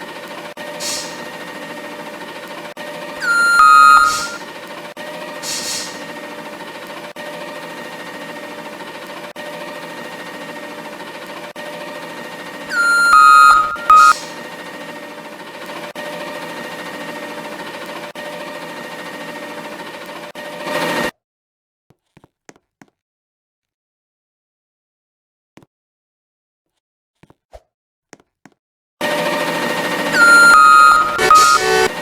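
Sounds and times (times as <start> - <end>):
loud beeps: 3.2 - 4.4, 12.7 - 14.2, 30.1 - 32.0
steady electronic hum: 30.2 - 32.0.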